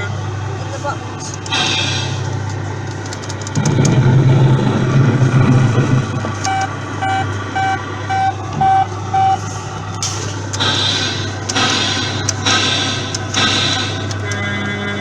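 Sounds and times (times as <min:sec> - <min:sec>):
steady low hum: 0:00.0 - 0:15.0
truck engine rumble sound effect: 0:00.0 - 0:15.0
reversing beeps: 0:06.4 - 0:09.4.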